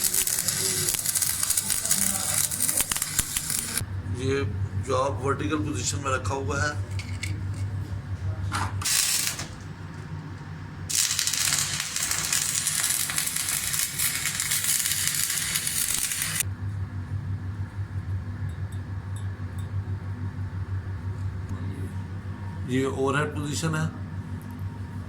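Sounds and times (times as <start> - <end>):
welding arc crackling and hissing: 0.0 - 3.8, 8.8 - 9.7, 10.9 - 16.5
steady low hum: 0.0 - 25.0.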